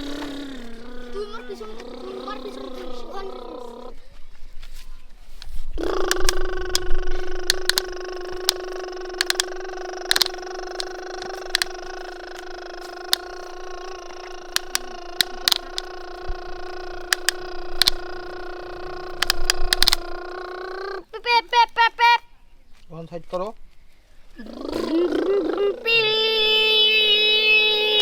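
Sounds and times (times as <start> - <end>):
sharp clicks: 0.0 - 3.5, 5.4 - 20.7
small motor whining: 0.0 - 3.7, 5.4 - 20.8.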